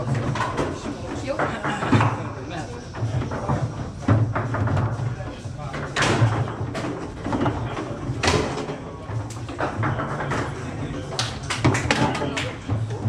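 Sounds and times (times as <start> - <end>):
foosball ball knocking: 5.8 - 13.0.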